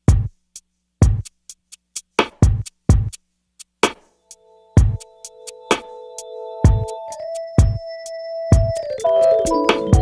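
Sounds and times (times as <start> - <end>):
deep kick drum: 0.1 - 0.3, 1.0 - 1.2, 2.3 - 3.1, 4.8 - 5.0, 6.7 - 6.9, 7.6 - 7.8
synthesizer notes: 4.3 - 10.0.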